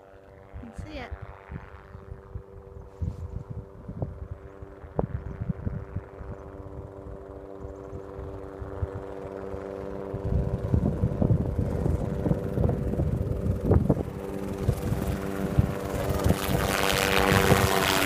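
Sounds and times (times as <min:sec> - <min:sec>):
helicopter droning: 0:00.0 - 0:18.0
wind buffeting microphone: 0:00.4 - 0:18.0.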